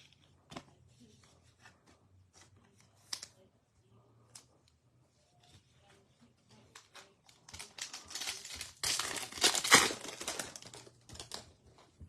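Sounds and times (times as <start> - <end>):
foil wrapper tearing and crinkling: 7.5 - 11.4.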